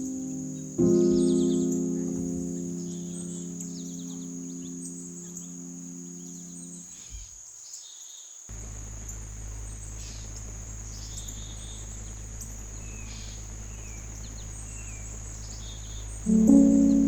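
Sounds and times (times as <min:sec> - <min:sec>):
held musical chord: 0:00.0 - 0:06.9, 0:08.7 - 0:17.0
bird chirps: 0:00.0 - 0:17.0
crickets trilling: 0:00.0 - 0:17.0
low background rumble: 0:08.5 - 0:17.0.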